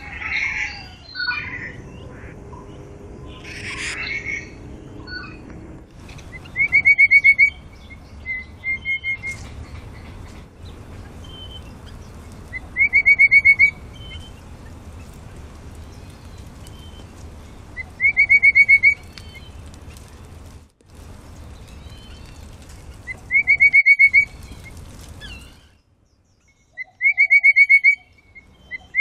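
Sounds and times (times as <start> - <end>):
songbird singing whistled notes: 6.3 - 14.4, 23.0 - 29.0.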